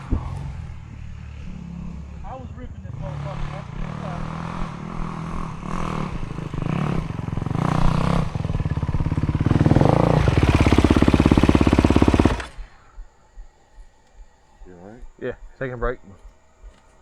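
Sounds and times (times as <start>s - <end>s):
motorcycle engine revving: 0.0s - 12.8s.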